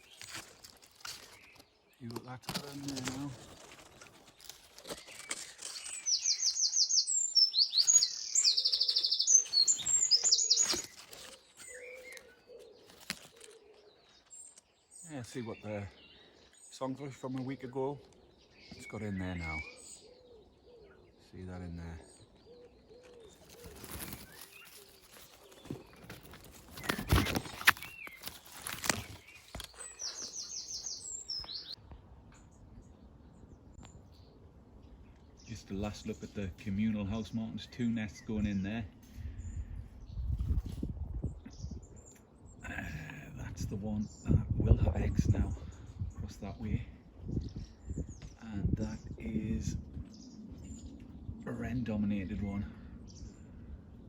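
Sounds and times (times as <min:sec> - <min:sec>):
rustling and handling noise: 0:00.0 - 0:06.2, 0:08.9 - 0:14.7, 0:22.9 - 0:31.7
songbird rapid trills: 0:03.9 - 0:13.8, 0:22.8 - 0:31.8.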